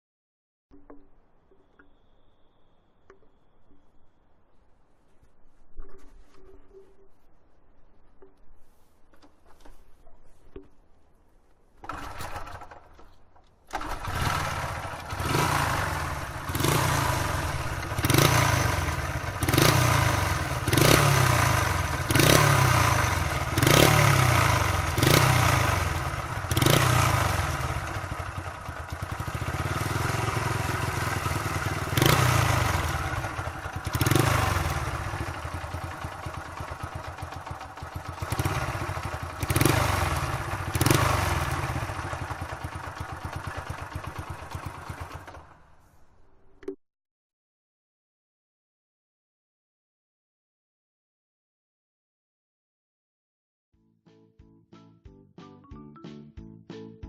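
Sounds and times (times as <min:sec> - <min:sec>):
small motorcycle engine revving: 0:11.8 - 0:12.9, 0:13.7 - 0:45.6.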